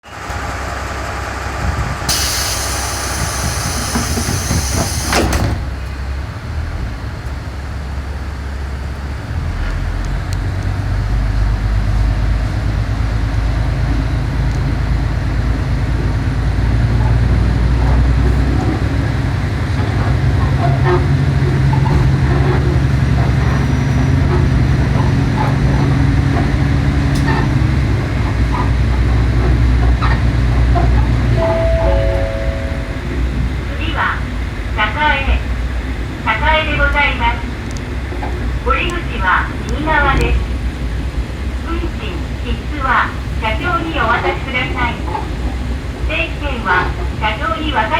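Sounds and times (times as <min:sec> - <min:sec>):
diesel engine rumble: 0:00.0 - 0:47.9
train wheels clicking on rails: 0:00.3 - 0:06.3
compressed air hissing: 0:02.1 - 0:05.5.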